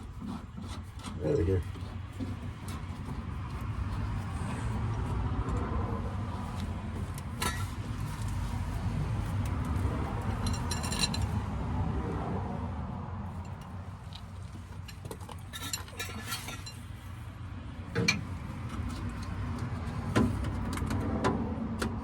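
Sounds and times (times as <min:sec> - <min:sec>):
light metal clinks and rattles: 0:06.5 - 0:11.5, 0:13.4 - 0:17.2.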